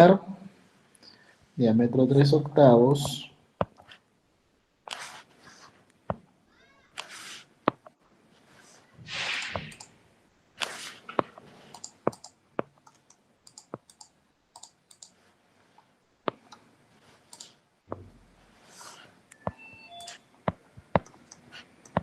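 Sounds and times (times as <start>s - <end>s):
soft hissing: 6.9s - 7.6s, 8.3s - 9.9s, 10.6s - 11.8s, 18.4s - 19.2s
computer mouse and keyboard clicks: 9.3s - 9.9s, 10.6s - 15.2s, 17.3s - 17.6s, 21.0s - 22.0s.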